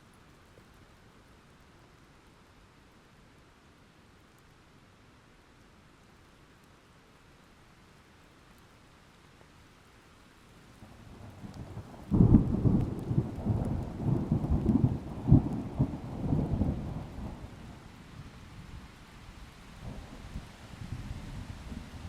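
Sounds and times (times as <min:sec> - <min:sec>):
faint rain: 0:00.0 - 0:22.0
thunder rumbling: 0:11.2 - 0:17.8.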